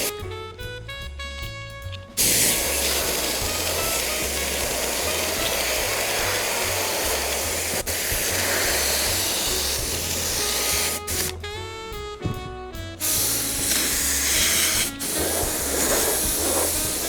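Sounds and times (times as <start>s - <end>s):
spray adhesive hissing: 0.0s - 0.2s, 2.2s - 11.4s, 13.0s - 17.0s
background music: 0.0s - 17.0s.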